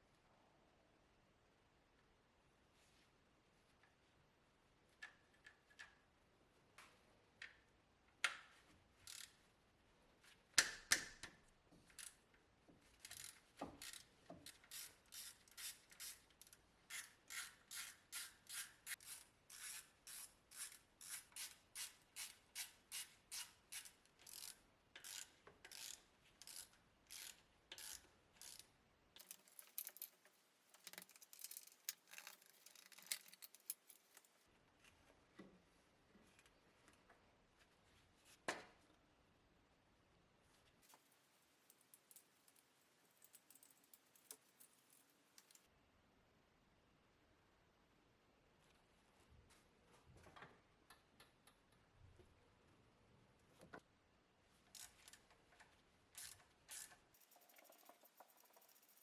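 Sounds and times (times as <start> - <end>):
ratchet wrench clicking: 16.9 - 30.1, 56.2 - 59.0.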